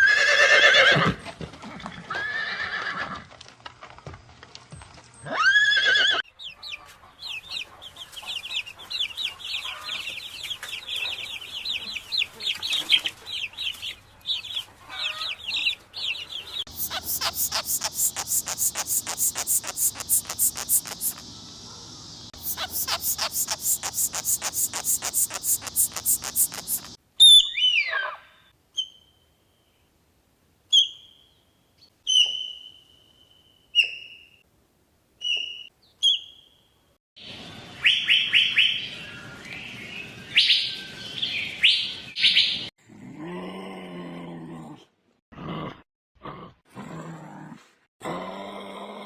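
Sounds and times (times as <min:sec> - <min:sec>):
high bird chirps: 0:13.8 - 0:21.6, 0:22.2 - 0:27.9
lower-pitched animal calls: 0:16.7 - 0:21.3, 0:22.4 - 0:27.0
bird trilling clicks: 0:16.8 - 0:21.2, 0:22.6 - 0:27.0.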